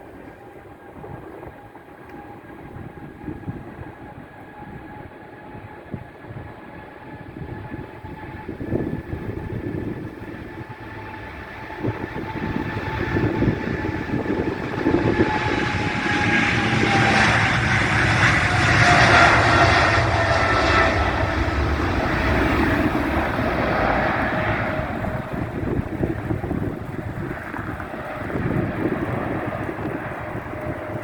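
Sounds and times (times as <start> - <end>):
jet engines passing: 0.0 - 31.0
wind buffeting microphone: 0.0 - 31.0.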